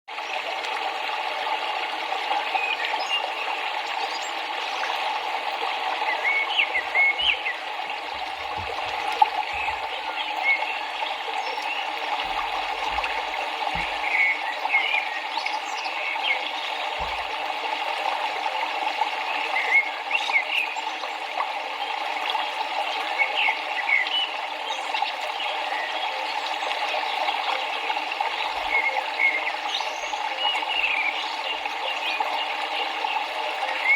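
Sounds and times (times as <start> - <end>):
birds chirping: 2.4 - 33.9.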